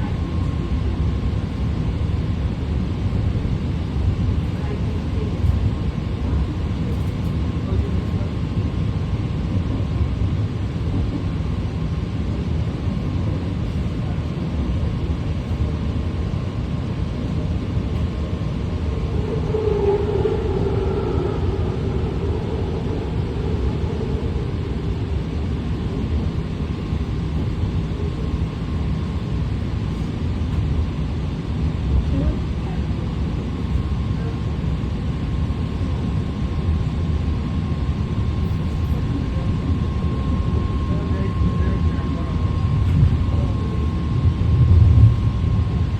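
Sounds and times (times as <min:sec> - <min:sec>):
train rumbling on track: 0:00.0 - 0:45.9
rising whine: 0:17.2 - 0:30.6, 0:39.9 - 0:45.9.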